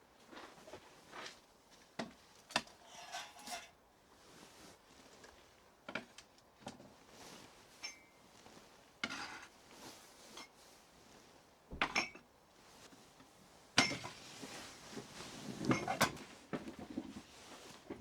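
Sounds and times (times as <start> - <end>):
dishes and cutlery clinking: 2.6 - 3.8.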